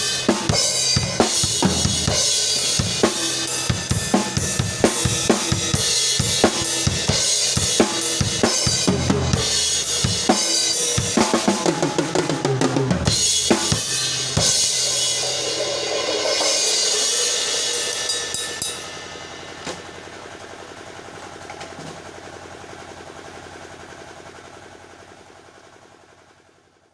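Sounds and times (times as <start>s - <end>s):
cymbals ringing: 0.0s - 12.0s, 13.0s - 20.3s
drum kit beat: 0.0s - 20.2s.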